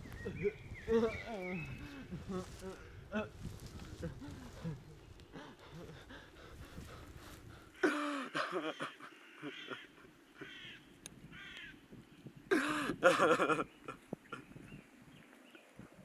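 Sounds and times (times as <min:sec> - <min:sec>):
crows cawing: 0:08.6 - 0:11.8.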